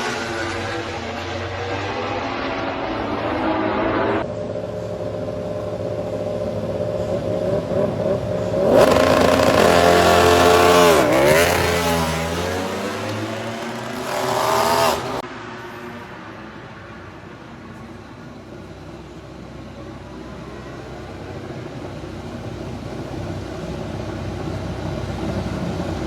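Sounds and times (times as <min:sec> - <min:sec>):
racing motorcycle engine revving: 0:00.0 - 0:15.6.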